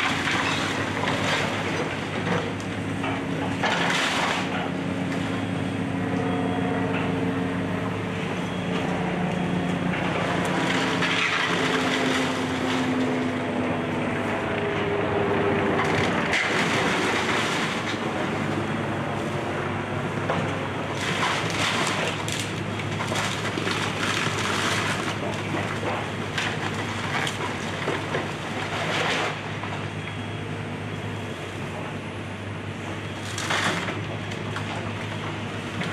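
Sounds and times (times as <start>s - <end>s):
wood cracking and crunching: 0.0s - 5.2s, 10.0s - 13.5s, 15.6s - 18.4s, 20.4s - 29.8s, 33.2s - 35.9s
excavator engine under load: 0.0s - 35.9s.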